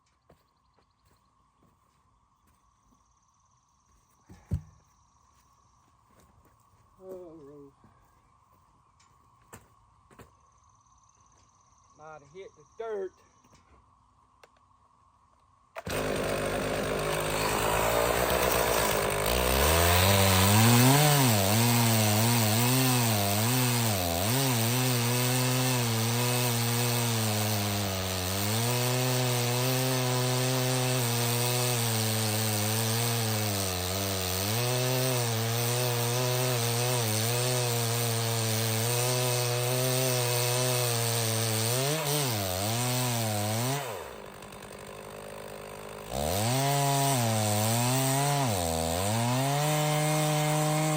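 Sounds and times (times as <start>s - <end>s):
chainsaw cutting log: 4.3s - 4.7s, 15.8s - 50.9s.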